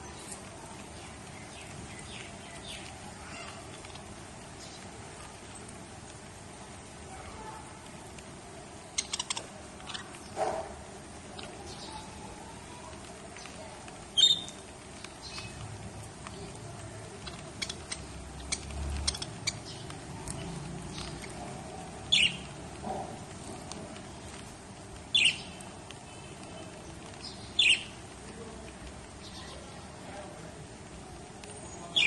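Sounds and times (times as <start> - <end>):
lovebird calls: 8.9 - 10.4, 14.2 - 14.6, 17.2 - 19.9, 20.9 - 23.0, 25.1 - 25.7, 27.2 - 28.0
soft ticks and clicks: 12.8 - 21.8.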